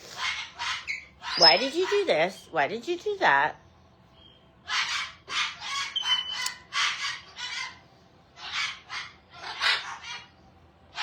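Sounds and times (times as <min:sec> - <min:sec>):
parrot squawking: 0:00.1 - 0:02.3, 0:04.6 - 0:07.8, 0:08.4 - 0:11.0.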